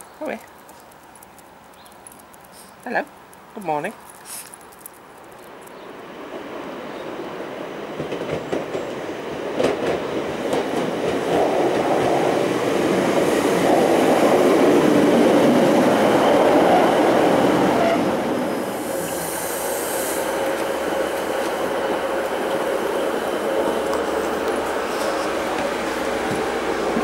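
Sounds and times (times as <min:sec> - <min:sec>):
sharp clicks: 0:00.0 - 0:05.8
train running and wheel noise: 0:05.5 - 0:27.0
brief hiss: 0:18.7 - 0:20.6.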